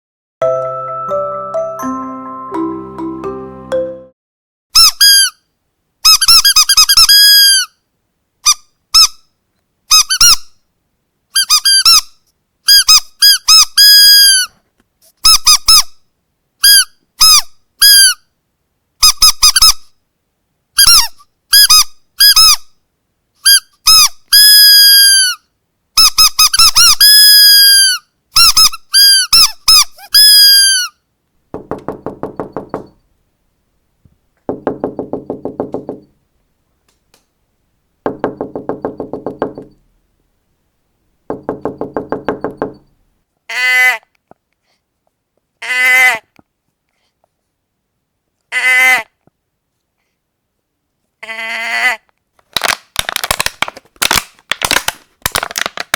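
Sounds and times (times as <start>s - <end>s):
squeaky dog toy squeaks: 4.8s - 5.4s, 6.0s - 7.8s, 8.4s - 9.3s, 9.9s - 10.6s, 11.4s - 14.6s, 15.2s - 16.0s, 16.6s - 18.2s, 19.0s - 19.9s, 20.8s - 22.7s, 23.4s - 25.4s, 26.0s - 31.0s
rapid knocking: 31.5s - 33.0s, 34.5s - 36.1s, 38.1s - 39.8s, 41.3s - 42.9s.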